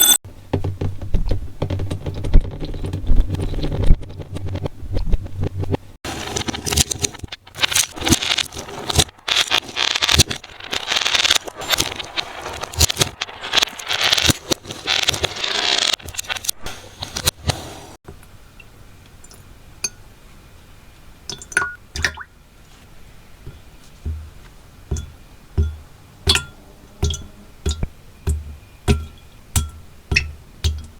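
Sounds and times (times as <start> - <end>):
material crackling and scraping: 0.0 - 18.0.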